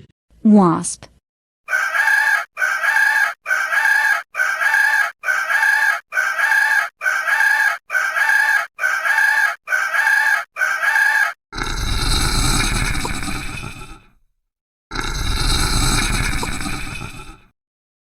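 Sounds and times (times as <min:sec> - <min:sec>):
chicken clucking: 0:01.7 - 0:11.4.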